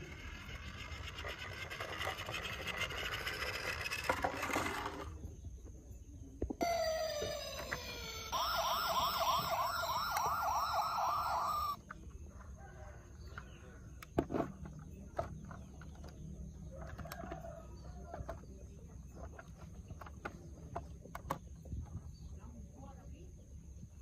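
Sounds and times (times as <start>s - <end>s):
electronic toy siren wailing: 6.6s - 11.8s.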